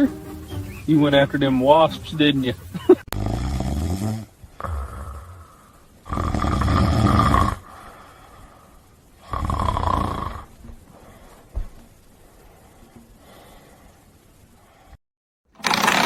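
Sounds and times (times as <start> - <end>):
dog snoring: 3.1 - 7.7, 9.2 - 10.5.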